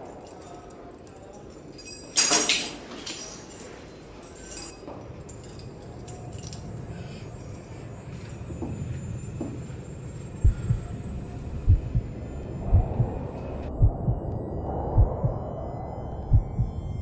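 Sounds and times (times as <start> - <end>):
metal clinking and jangling: 0.0 - 11.8
low background hum: 0.0 - 17.0.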